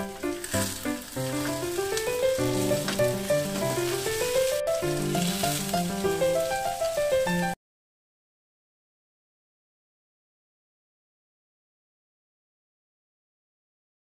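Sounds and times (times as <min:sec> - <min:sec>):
background music: 0:00.0 - 0:07.6
bread sizzling in a frying pan: 0:00.0 - 0:07.6.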